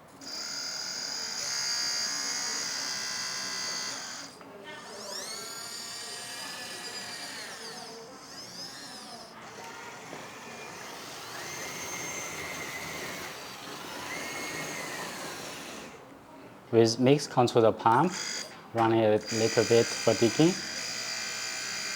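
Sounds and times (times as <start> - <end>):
hydraulic pump whining: 0.0 - 16.1, 17.9 - 21.9.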